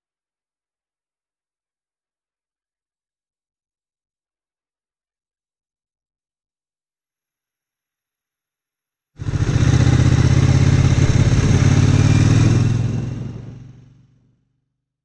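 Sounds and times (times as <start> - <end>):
motorcycle engine running: 9.2 - 14.3.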